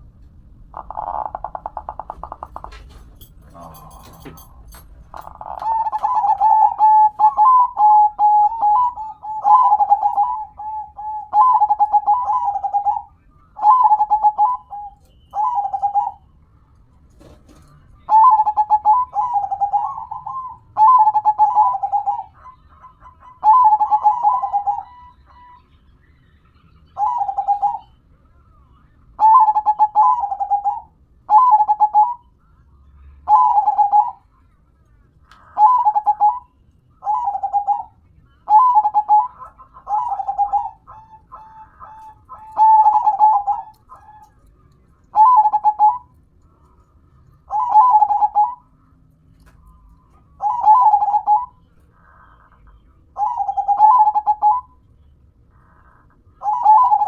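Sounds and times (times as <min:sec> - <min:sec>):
dove cooing: 0:00.7 - 0:04.4, 0:05.1 - 0:16.3, 0:18.0 - 0:25.7, 0:26.9 - 0:28.0, 0:29.2 - 0:32.3, 0:33.3 - 0:34.3, 0:35.5 - 0:44.5, 0:45.1 - 0:46.2, 0:47.4 - 0:48.7, 0:49.7 - 0:54.8, 0:55.6 - 0:57.0.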